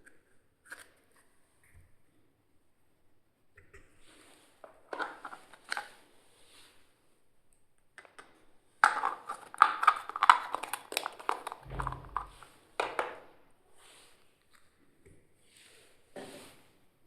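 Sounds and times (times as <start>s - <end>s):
dull thump: 11.7s - 12.4s.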